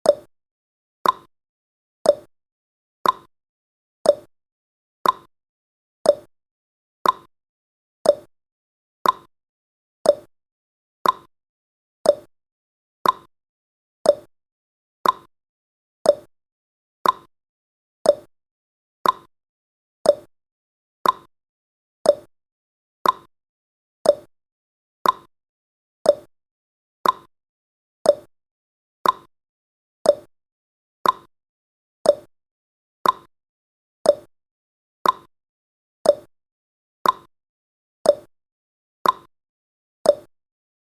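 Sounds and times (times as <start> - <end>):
clock tick-tock: 0.0 - 0.3, 1.0 - 1.3, 2.0 - 2.3, 3.0 - 3.3, 4.0 - 4.3, 5.0 - 5.3, 6.0 - 6.3, 7.0 - 7.3, 8.0 - 8.3, 9.0 - 9.3, 10.0 - 10.3, 11.0 - 11.3, 12.0 - 12.3, 13.0 - 13.3, 14.0 - 14.3, 15.0 - 15.3, 16.0 - 16.3, 17.0 - 17.3, 18.0 - 18.3, 19.0 - 19.3, 20.0 - 20.3, 21.0 - 21.3, 22.0 - 22.3, 23.0 - 23.3, 24.0 - 24.3, 25.0 - 25.3, 26.0 - 26.3, 27.0 - 27.3, 28.0 - 28.3, 29.0 - 29.3, 30.0 - 30.3, 31.0 - 31.3, 32.0 - 32.3, 33.0 - 33.3, 34.0 - 34.3, 35.0 - 35.3, 36.0 - 36.3, 37.0 - 37.3, 38.0 - 38.3, 39.0 - 39.3, 40.0 - 40.4.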